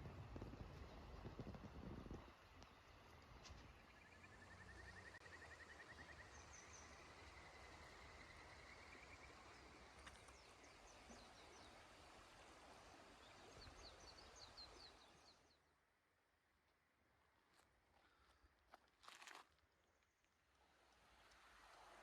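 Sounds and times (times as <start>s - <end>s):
small birds singing: 2.2s - 15.6s.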